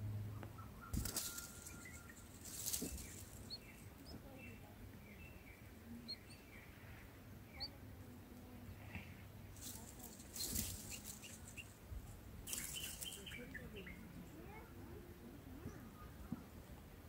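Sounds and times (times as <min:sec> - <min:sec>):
faint high bird chirps: 0:00.3 - 0:06.8, 0:07.5 - 0:07.8, 0:12.5 - 0:14.6
bird wings fluttering: 0:00.9 - 0:03.6, 0:09.6 - 0:11.7, 0:12.5 - 0:13.3.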